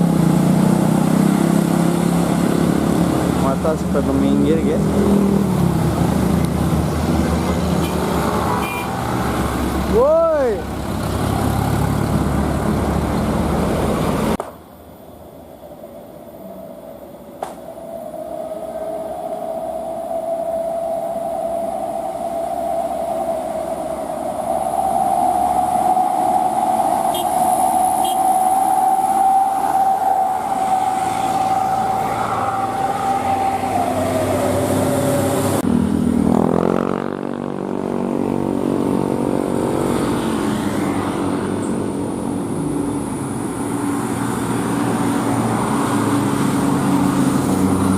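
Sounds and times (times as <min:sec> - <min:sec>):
steady whine rising in pitch: 0:15.8 - 0:47.9.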